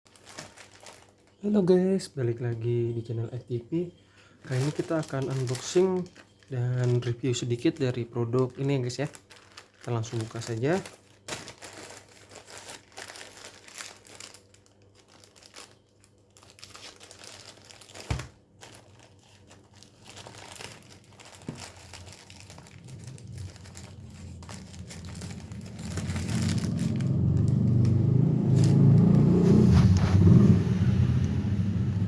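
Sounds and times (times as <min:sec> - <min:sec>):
small clicks and crackles: 0:00.1 - 0:01.3, 0:08.6 - 0:28.0
packaging crinkling and rustling: 0:00.1 - 0:30.4
low rumble: 0:21.8 - 0:32.0.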